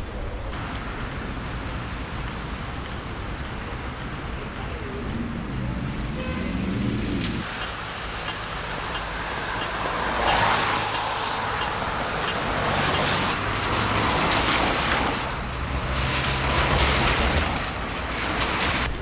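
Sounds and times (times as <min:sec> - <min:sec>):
road vehicle engine and tyres: 0:00.0 - 0:19.0
faint regular ticking: 0:07.5 - 0:13.2.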